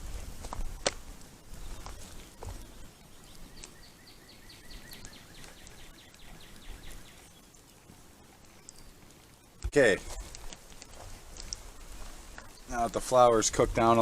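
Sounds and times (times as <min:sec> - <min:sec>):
low wind rumble: 0:00.0 - 0:08.2
faint clicks: 0:00.5 - 0:03.8, 0:04.7 - 0:07.8, 0:08.4 - 0:11.7
songbird trilling: 0:03.1 - 0:07.6.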